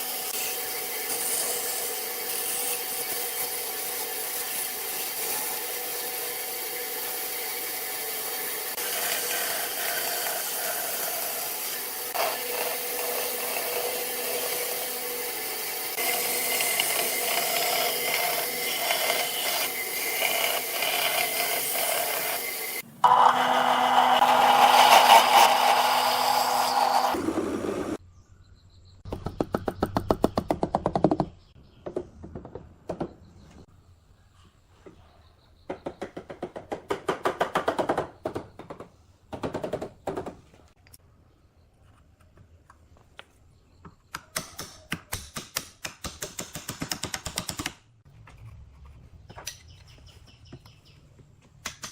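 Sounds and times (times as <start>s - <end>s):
loud power tool on wood: 0.0s - 28.0s
steady woodworking machine noise: 0.0s - 28.0s.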